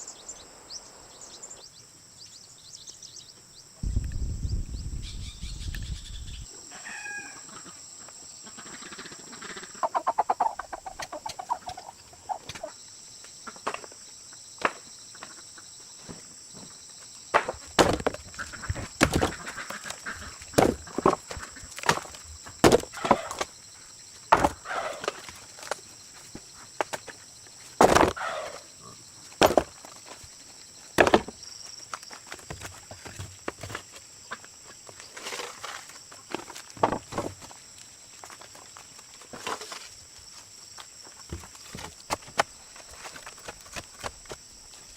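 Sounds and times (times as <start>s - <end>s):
chickens clucking: 7.4s - 12.8s.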